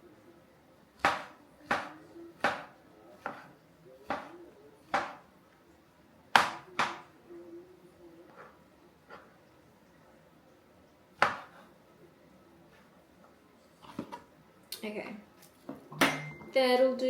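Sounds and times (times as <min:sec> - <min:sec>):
knife cutting on cutting board: 0:01.1 - 0:04.3.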